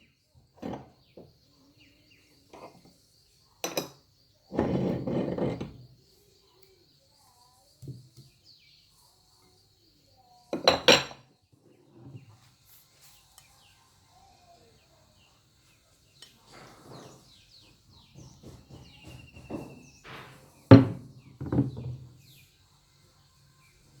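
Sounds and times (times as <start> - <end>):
kitchenware clattering: 3.6 - 5.8, 10.5 - 11.3, 18.2 - 22.2.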